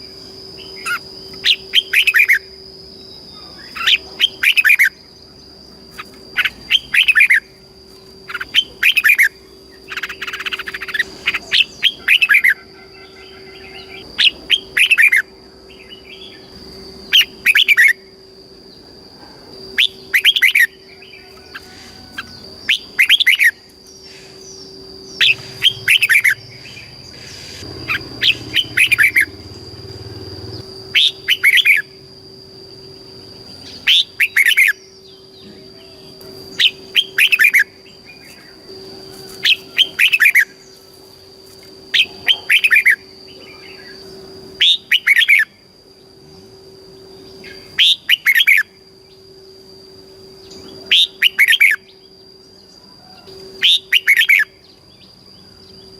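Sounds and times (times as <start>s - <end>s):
bulbul singing: 0.0s - 55.9s.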